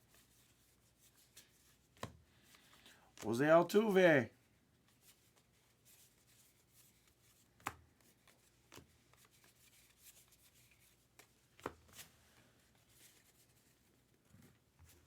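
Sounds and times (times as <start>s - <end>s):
cards rustling: 4.8s - 14.0s.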